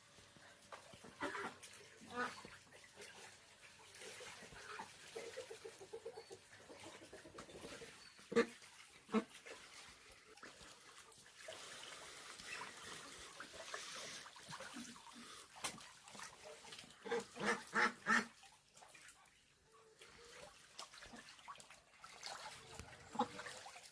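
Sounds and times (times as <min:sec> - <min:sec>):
waterfowl calling: 0:01.0 - 0:02.6, 0:17.0 - 0:18.3, 0:22.4 - 0:23.7.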